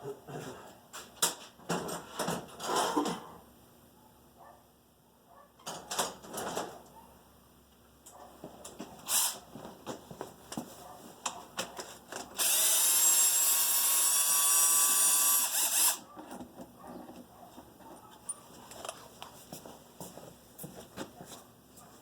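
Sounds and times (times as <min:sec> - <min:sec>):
power drill running: 0:12.4 - 0:16.0.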